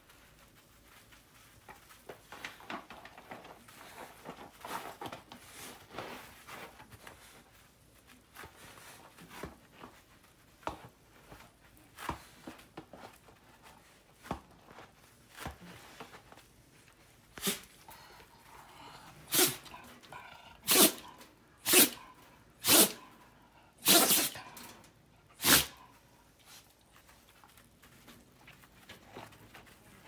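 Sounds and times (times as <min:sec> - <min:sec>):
dog short sharp vocal bursts: 0:17.4 - 0:17.7, 0:19.3 - 0:19.7, 0:20.6 - 0:22.0, 0:22.6 - 0:23.1, 0:23.8 - 0:24.6, 0:25.4 - 0:25.8.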